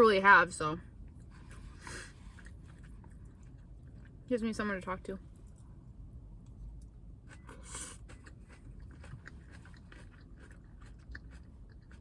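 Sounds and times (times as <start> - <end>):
person chewing salad: 1.0 - 4.3, 6.4 - 12.0.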